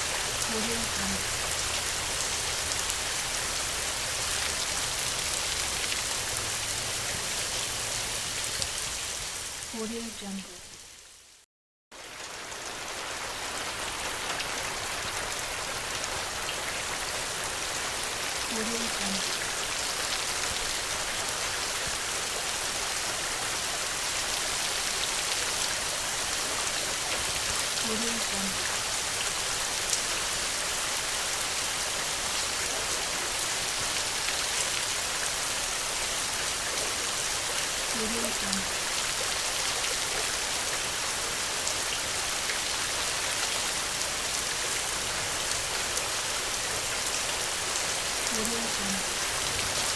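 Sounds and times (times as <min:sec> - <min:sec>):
steady rain hiss: 0:00.0 - 0:11.4, 0:12.0 - 0:49.9
raindrops ticking: 0:37.8 - 0:39.3.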